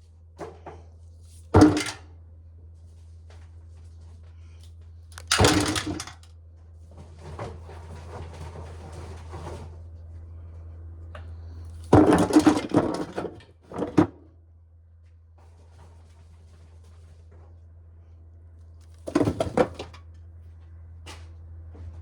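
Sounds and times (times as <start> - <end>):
corn shelling rattling and grinding: 5.2 - 6.3.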